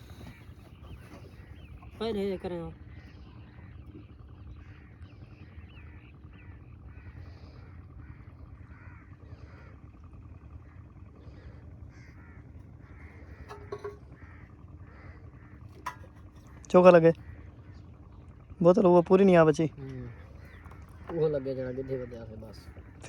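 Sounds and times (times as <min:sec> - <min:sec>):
crows cawing: 0:00.0 - 0:01.3, 0:05.8 - 0:18.1, 0:19.8 - 0:23.0
low steady rumble: 0:00.0 - 0:23.0.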